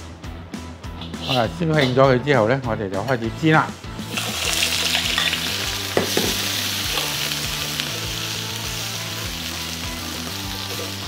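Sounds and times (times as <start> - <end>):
prawns sizzling in hot oil: 4.0 - 11.0.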